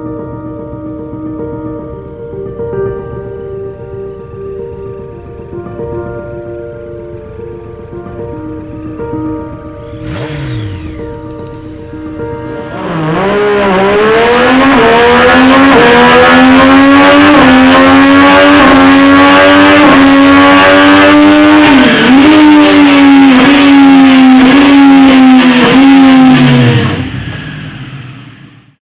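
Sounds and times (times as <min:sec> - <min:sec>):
racing engine at high revs: 0:09.8 - 0:28.8.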